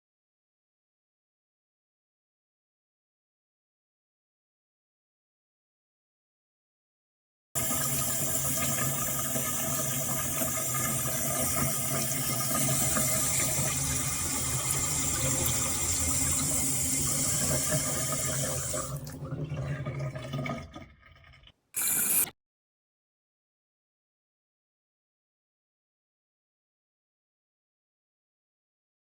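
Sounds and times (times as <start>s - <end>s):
tap water running into sink: 7.6s - 22.3s.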